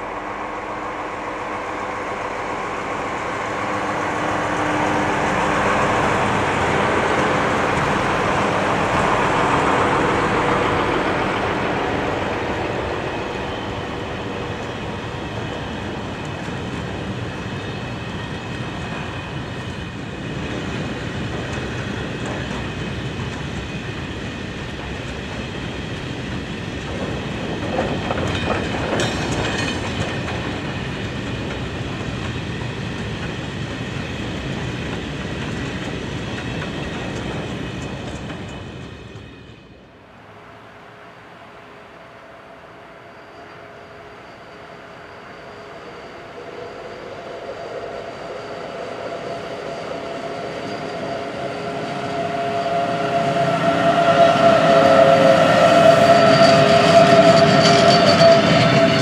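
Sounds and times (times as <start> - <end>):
diesel locomotives passing: 0.0 - 59.0
freight train wheels rumbling: 0.0 - 59.0
wheels clacking over rail joints: 20.8 - 38.9.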